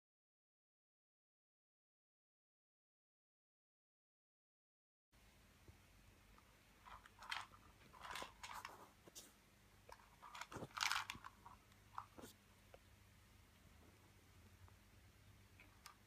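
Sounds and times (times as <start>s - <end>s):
cat crunching a treat: 9.9s - 12.2s.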